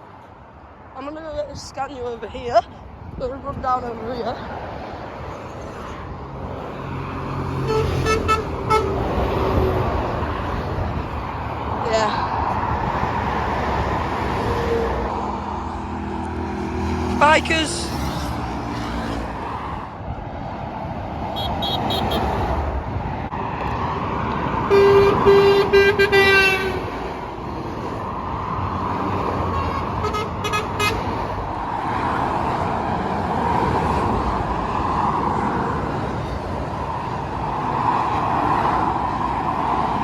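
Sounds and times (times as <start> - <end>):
road traffic passing: 0.0 - 40.0
vehicle horn: 7.6 - 9.2, 21.4 - 22.4, 24.7 - 26.9, 29.5 - 31.1.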